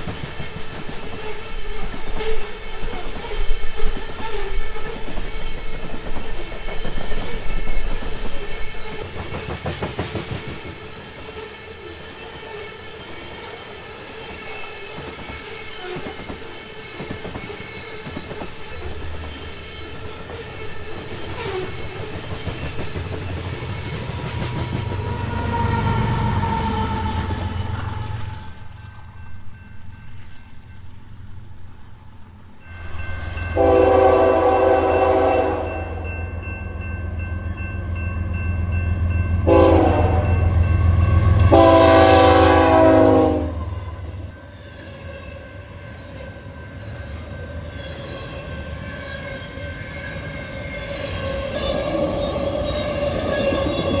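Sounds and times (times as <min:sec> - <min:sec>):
train wheels clicking on rails: 0:00.0 - 0:31.0
locomotive horn: 0:33.5 - 0:36.3, 0:39.3 - 0:44.3.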